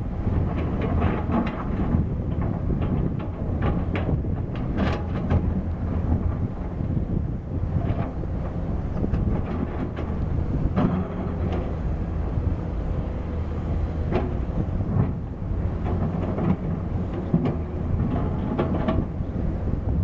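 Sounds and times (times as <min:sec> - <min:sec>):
diesel engine running: 0:05.8 - 0:20.0.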